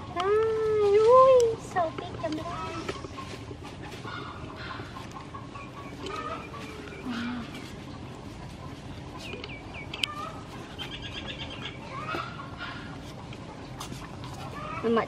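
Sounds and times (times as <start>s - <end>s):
low background hum: 0.0s - 15.0s
birds chirping: 1.6s - 15.0s.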